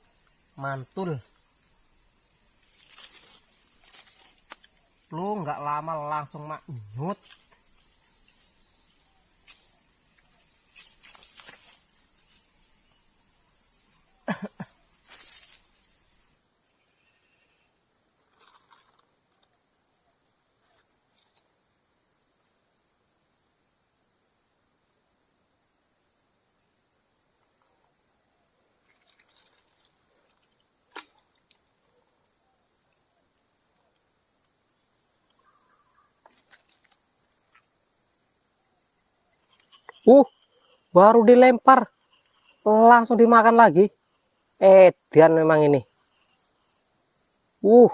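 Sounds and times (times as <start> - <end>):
insect chorus chirring: 0.0 - 47.9.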